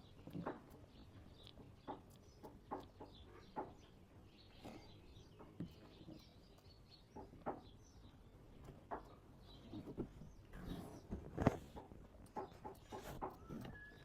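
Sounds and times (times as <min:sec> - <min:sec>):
faint bird calls: 0:12.4 - 0:14.0.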